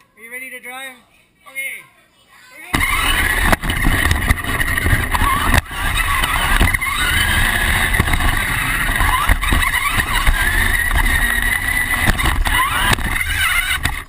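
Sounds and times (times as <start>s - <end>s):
toy truck motor whine: 2.8s - 14.0s.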